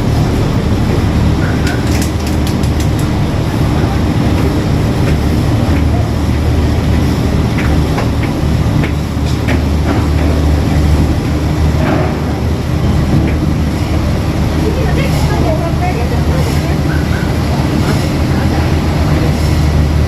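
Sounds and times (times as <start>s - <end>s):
ferry engines rumbling: 0.0s - 20.0s
faint voices: 1.3s - 7.9s, 13.6s - 20.0s.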